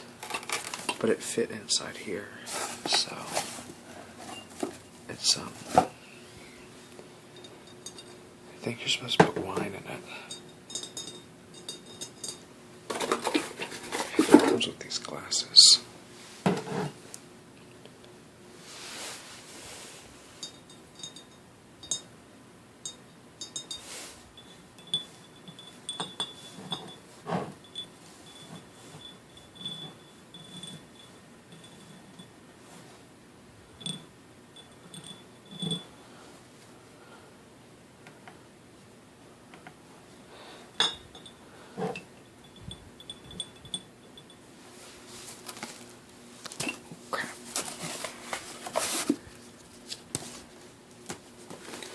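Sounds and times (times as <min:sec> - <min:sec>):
soft rustles: 0:02.4 - 0:06.0, 0:18.6 - 0:20.4, 0:44.6 - 0:51.9
wine glasses clinking: 0:22.8 - 0:27.0, 0:40.8 - 0:44.4.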